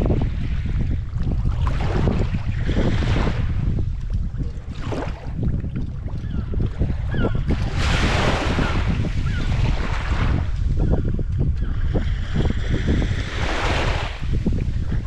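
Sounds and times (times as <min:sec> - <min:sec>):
water at the shore: 0:00.0 - 0:15.0
wind buffeting microphone: 0:00.0 - 0:15.0
wave washing in: 0:12.4 - 0:15.0.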